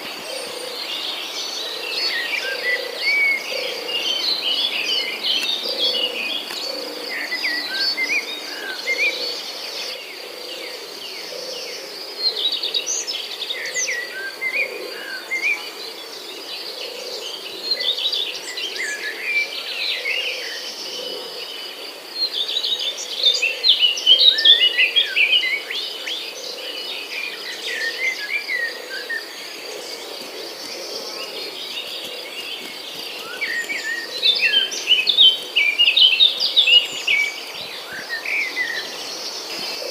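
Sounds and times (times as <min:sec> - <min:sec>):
small birds chirping: 0:27.8 - 0:39.9.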